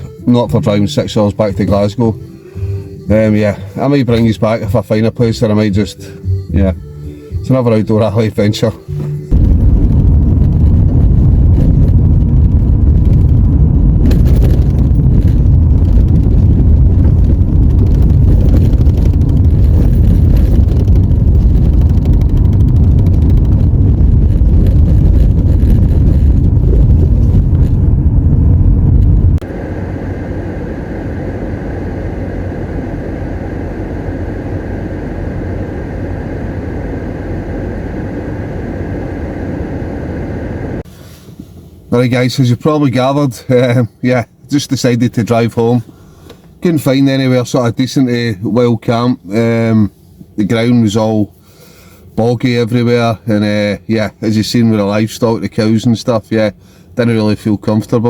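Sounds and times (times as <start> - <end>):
car engine and road noise: 0.0 - 42.2
faint high whine: 29.1 - 40.9.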